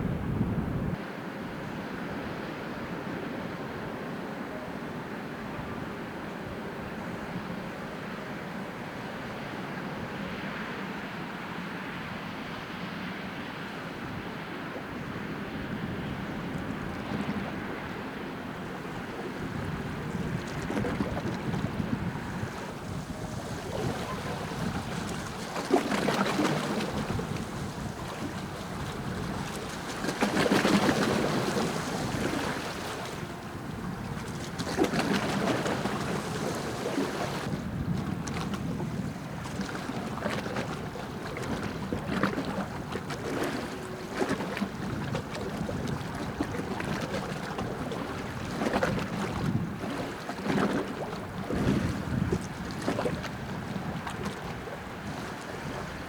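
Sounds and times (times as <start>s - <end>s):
wind buffeting microphone: 0.0s - 1.0s, 13.9s - 56.0s
rushing water: 13.5s - 56.0s.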